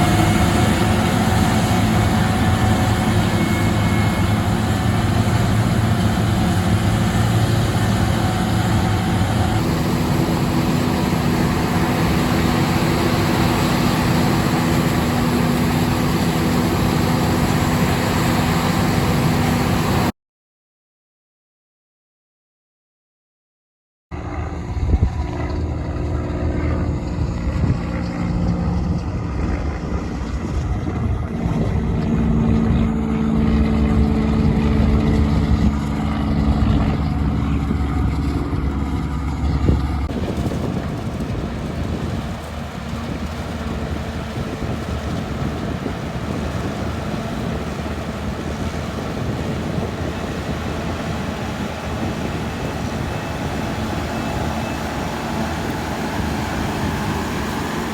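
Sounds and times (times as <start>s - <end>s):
hissing machine noise: 0.0s - 18.6s, 40.1s - 57.9s
harvesting machinery engine hum: 0.0s - 20.1s, 25.2s - 57.9s.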